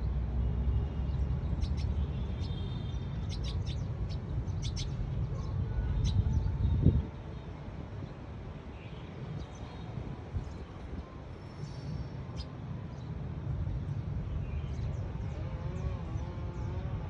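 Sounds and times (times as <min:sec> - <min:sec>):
small songbird chirping: 0:01.0 - 0:05.3.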